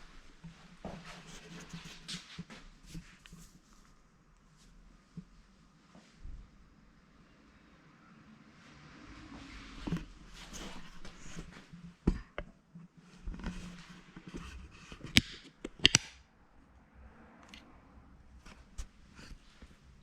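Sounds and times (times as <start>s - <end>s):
sharp clicks and knocks: 14.2s - 16.2s.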